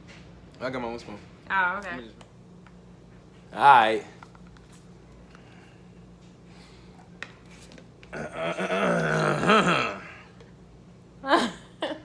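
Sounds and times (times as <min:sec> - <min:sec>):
person making wavering vocal sound: 0:08.2 - 0:10.2
short falling vocal sound: 0:08.2 - 0:10.2.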